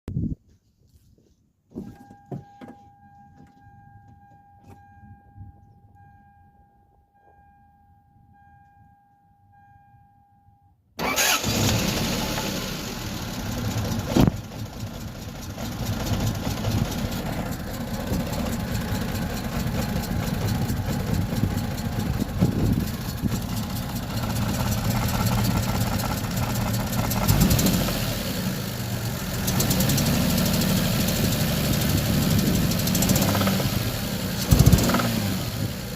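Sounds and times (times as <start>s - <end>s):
car engine starting and running: 11.0s - 35.9s
engine knock: 13.3s - 28.1s, 29.1s - 35.6s.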